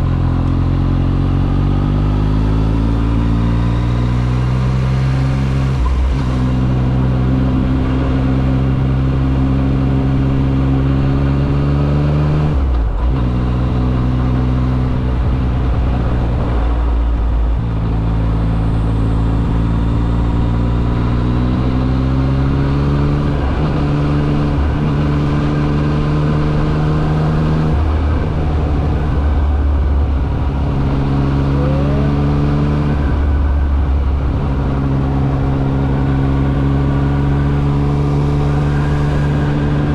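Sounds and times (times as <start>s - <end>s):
motorcycle engine running: 12.6s - 39.9s.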